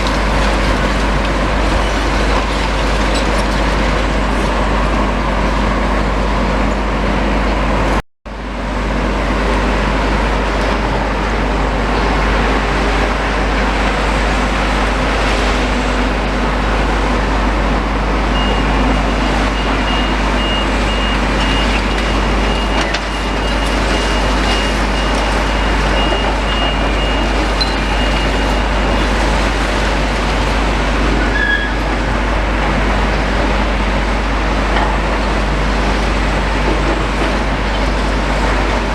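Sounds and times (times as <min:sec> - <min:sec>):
demolition machinery rumbling: 0:00.0 - 0:38.9
reversing alarm beeping: 0:18.3 - 0:29.4.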